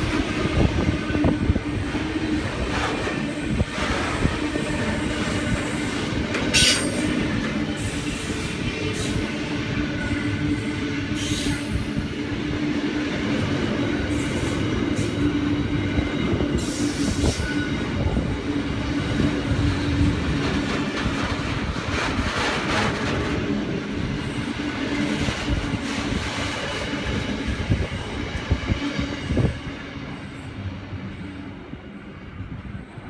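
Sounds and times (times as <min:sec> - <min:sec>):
train wheels squealing: 0:00.0 - 0:12.2, 0:13.8 - 0:20.0, 0:27.0 - 0:33.0
train wagons rolling past: 0:00.0 - 0:32.5.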